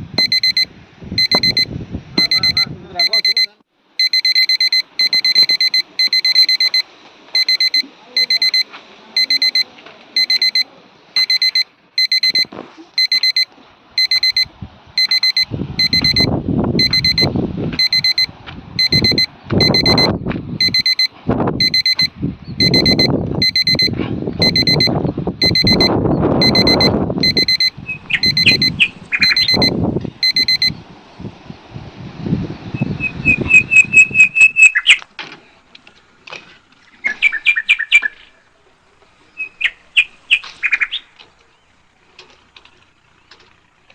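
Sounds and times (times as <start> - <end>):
high-pitched electronic alarm beeping: 0.2 - 30.8.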